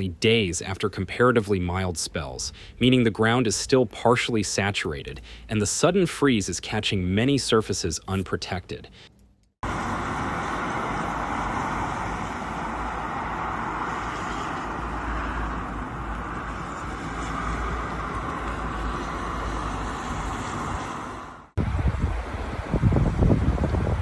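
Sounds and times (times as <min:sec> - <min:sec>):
road traffic: 0:05.0 - 0:06.4, 0:08.9 - 0:24.0.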